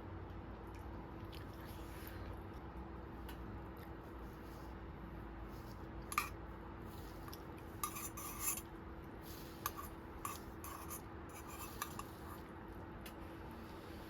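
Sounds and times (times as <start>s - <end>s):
utensil scraping cookware: 6.1s - 6.4s, 7.1s - 8.7s, 9.3s - 12.4s.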